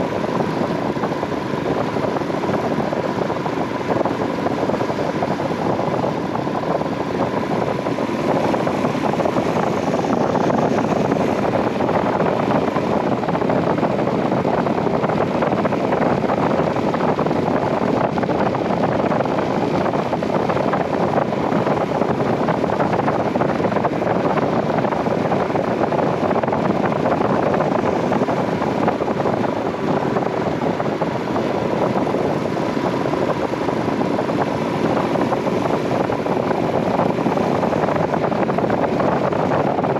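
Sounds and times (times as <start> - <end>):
motorcycle engine running: 0.0 - 39.9
wind rushing on microphone: 0.0 - 39.9.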